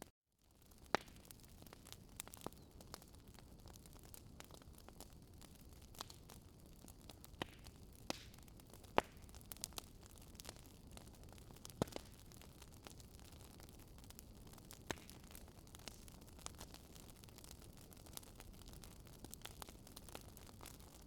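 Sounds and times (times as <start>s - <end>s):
wood fire crackling: 0.6s - 21.0s.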